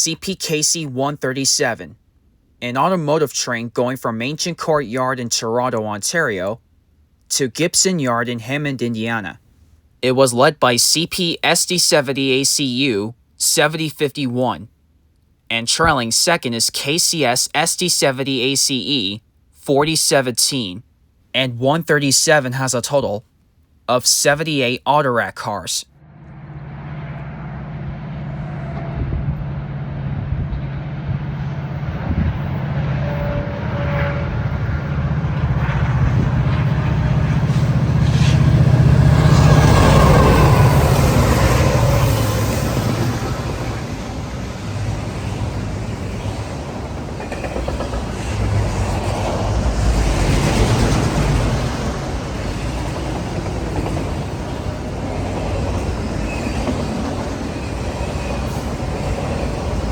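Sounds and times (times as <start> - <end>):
locomotive engines droning: 26.0 - 59.9
rail cars rumbling by: 26.0 - 59.9.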